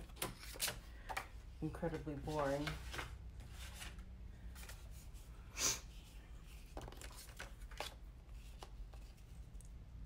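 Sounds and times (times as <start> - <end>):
paper rustling: 1.8 - 5.3, 6.4 - 9.4.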